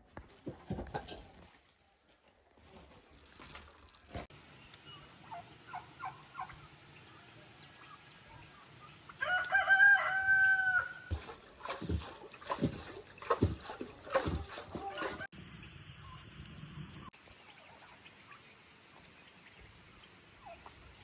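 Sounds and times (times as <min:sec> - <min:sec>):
chicken clucking: 0:04.8 - 0:11.2, 0:13.4 - 0:15.3
rooster crowing: 0:09.2 - 0:11.2.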